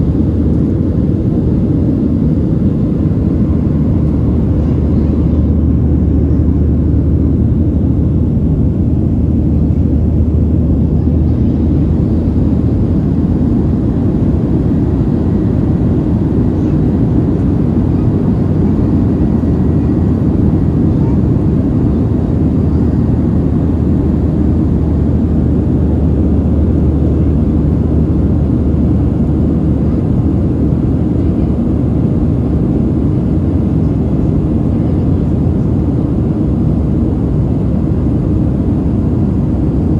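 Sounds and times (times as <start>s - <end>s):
low hum: 0.0s - 29.8s
airplane cabin engine noise: 0.0s - 39.9s.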